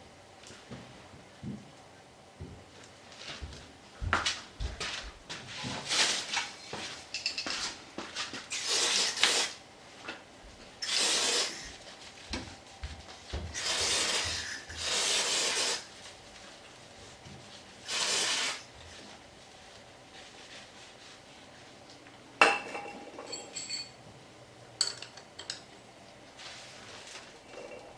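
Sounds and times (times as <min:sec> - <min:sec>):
short hissing bursts: 0:08.5 - 0:09.6, 0:10.8 - 0:11.8, 0:13.6 - 0:15.9, 0:17.8 - 0:18.7.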